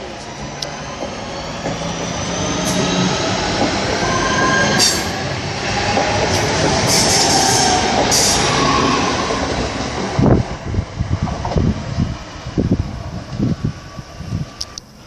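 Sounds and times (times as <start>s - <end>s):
train running rumble: 0.0s - 15.0s
train wheels squealing on rails: 0.1s - 9.8s.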